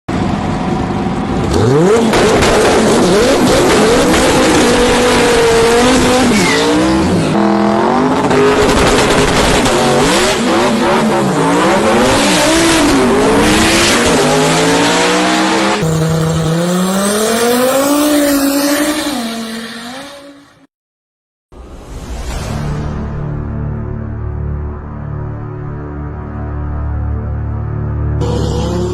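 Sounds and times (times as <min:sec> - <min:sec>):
car engine revving hard: 0:01.4 - 0:20.3, 0:28.2 - 0:28.9.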